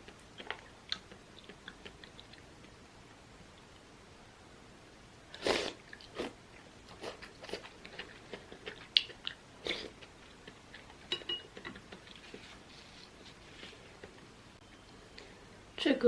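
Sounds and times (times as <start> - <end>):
chewing with wet mouth smacks: 0.0 - 2.8, 5.8 - 12.3.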